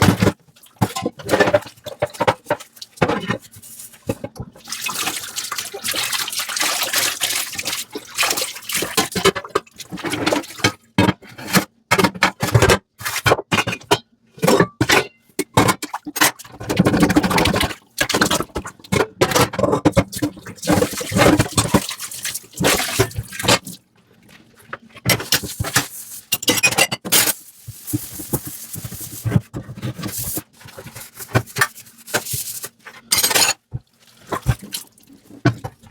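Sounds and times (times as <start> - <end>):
sponge scrubbing dishes: 0.0 - 11.6, 16.0 - 35.9
water splashing and dripping: 4.6 - 9.0.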